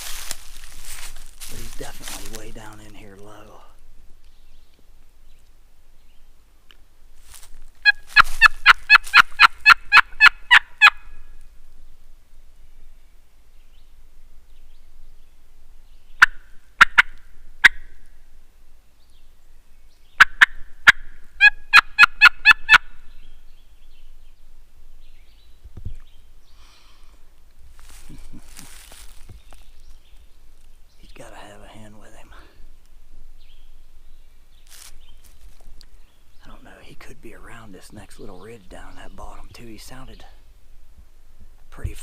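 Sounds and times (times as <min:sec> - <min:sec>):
turkey call yelps: 0:07.8 - 0:11.2, 0:20.2 - 0:22.9.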